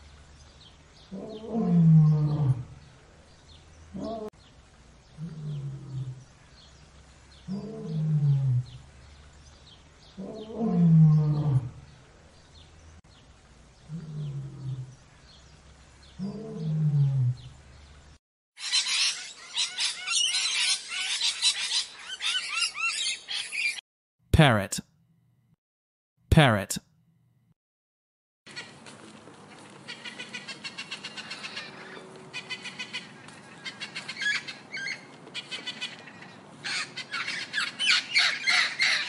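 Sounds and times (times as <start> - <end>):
lion roaring: 1.1 - 2.8, 3.9 - 4.3, 5.2 - 6.3, 7.4 - 8.8, 10.2 - 11.9, 13.8 - 15.0, 16.2 - 17.5.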